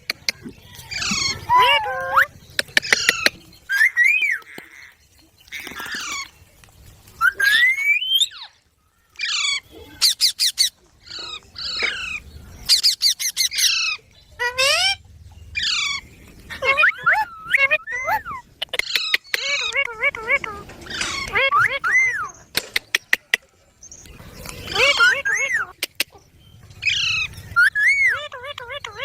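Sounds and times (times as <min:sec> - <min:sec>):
parrot squawking and chirping: 0:00.0 - 0:06.4, 0:07.2 - 0:23.1, 0:24.0 - 0:29.0.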